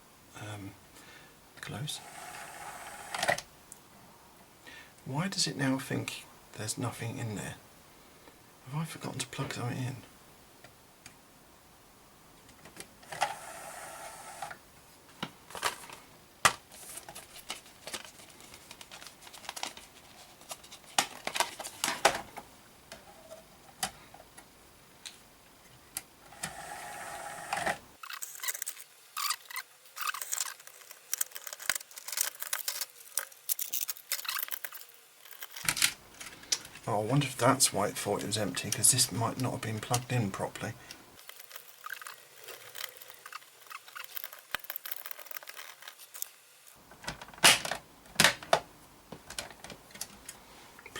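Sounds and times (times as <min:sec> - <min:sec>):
hands handling cable connectors: 0:15.1 - 0:24.4, 0:30.1 - 0:36.9, 0:46.9 - 0:50.4.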